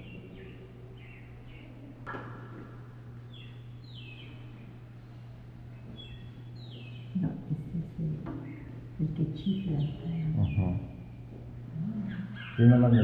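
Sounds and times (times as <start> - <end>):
faint bird chirps: 0.0 - 1.9
steady low hum: 0.0 - 13.0.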